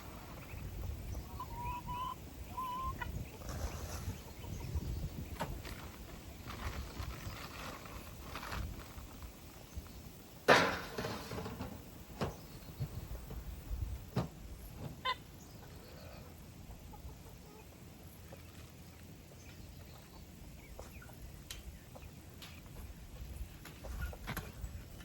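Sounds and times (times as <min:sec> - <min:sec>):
chickens clucking: 0:00.0 - 0:07.3, 0:14.7 - 0:25.0.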